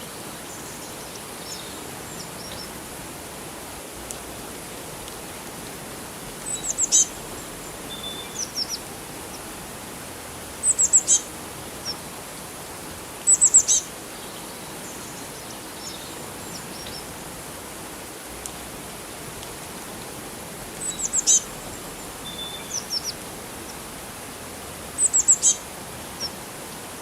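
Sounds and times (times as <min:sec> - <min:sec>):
flowing water: 0:00.0 - 0:27.0
small birds chirping: 0:06.4 - 0:09.5, 0:10.6 - 0:12.0, 0:13.3 - 0:17.1, 0:20.8 - 0:23.9, 0:25.0 - 0:26.4.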